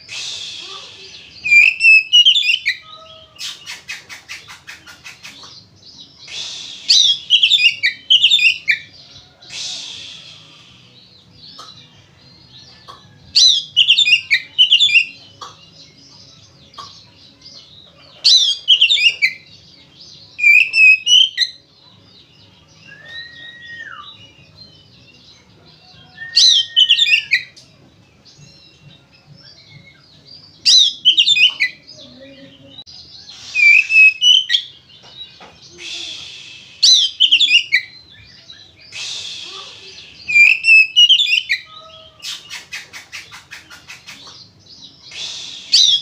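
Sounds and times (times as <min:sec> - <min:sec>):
slurred bird whistle: 0:00.0 - 0:04.4, 0:06.3 - 0:11.0, 0:18.3 - 0:19.4, 0:20.4 - 0:21.6, 0:22.8 - 0:24.3, 0:26.0 - 0:27.6, 0:33.3 - 0:34.8, 0:35.7 - 0:38.0, 0:38.6 - 0:44.3, 0:45.1 - 0:46.0
songbird singing rapid high notes: 0:00.0 - 0:11.8, 0:20.3 - 0:21.6, 0:29.4 - 0:46.0.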